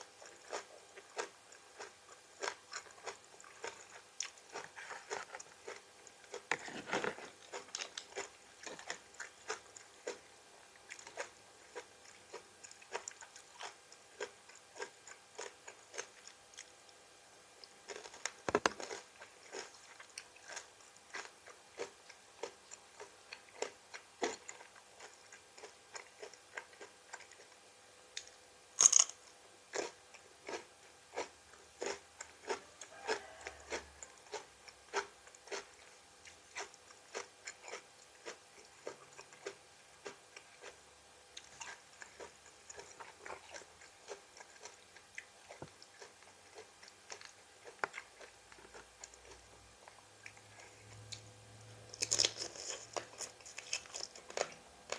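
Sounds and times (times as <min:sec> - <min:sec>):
person chewing crunchy vegetables: 0:00.0 - 0:27.6, 0:28.2 - 0:54.9.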